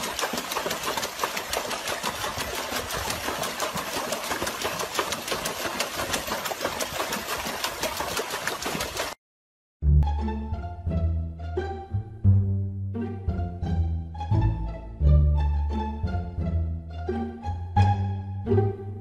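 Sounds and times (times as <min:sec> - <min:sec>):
dog splashing water in tub: 0:00.0 - 0:09.2.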